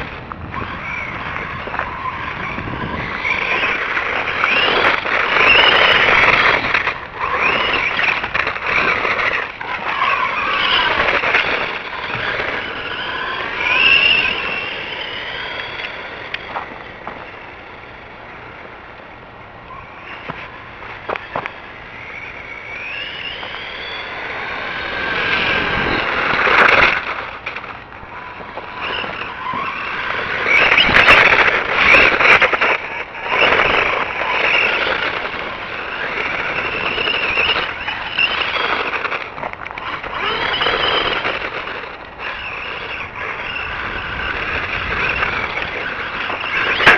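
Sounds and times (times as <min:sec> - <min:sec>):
electric motor whining: 0:00.0 - 0:46.9
tyre and ground noise: 0:00.0 - 0:46.9.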